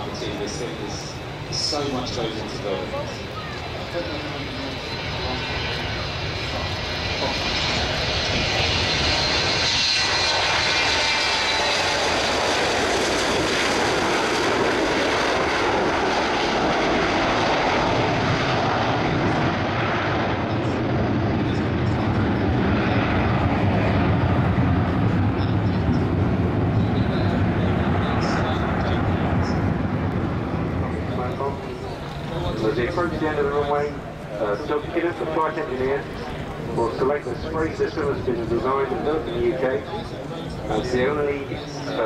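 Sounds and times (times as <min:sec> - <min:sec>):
jet airliner flying past: 0:00.0 - 0:42.0.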